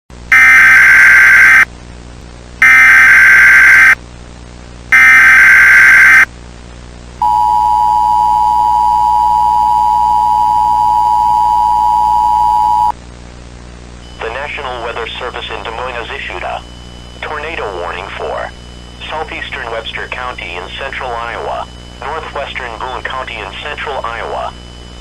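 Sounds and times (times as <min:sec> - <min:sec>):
data tone bursts: 0:00.3 - 0:01.6, 0:02.6 - 0:04.0, 0:04.9 - 0:06.3, 0:07.2 - 0:12.9, 0:14.1 - 0:25.0.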